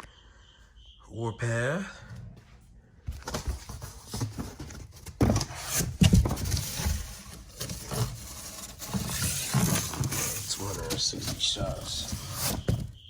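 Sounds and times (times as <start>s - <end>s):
cardboard boxes being handled: 3.0s - 13.0s.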